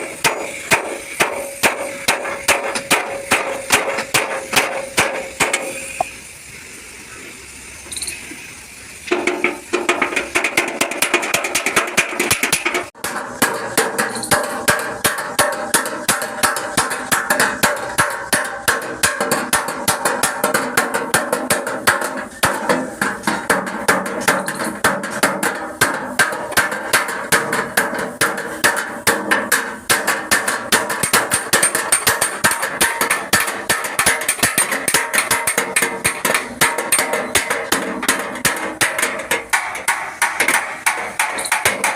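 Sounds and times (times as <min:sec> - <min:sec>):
hammer blows on ringing sheet metal: 0:00.0 - 0:06.1.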